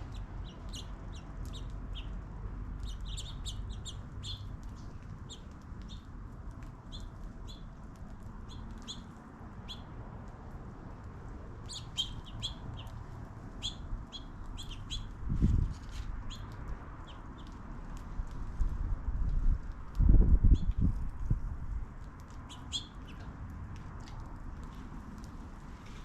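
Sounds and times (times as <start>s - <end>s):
small birds chirping: 0.0s - 6.1s, 6.8s - 10.0s, 11.6s - 15.2s, 15.8s - 17.6s, 22.3s - 23.3s
low background rumble: 0.0s - 26.0s.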